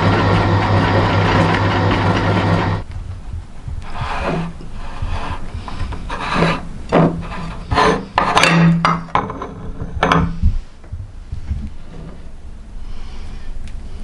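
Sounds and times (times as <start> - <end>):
meat grinder grinding: 0.0 - 2.8.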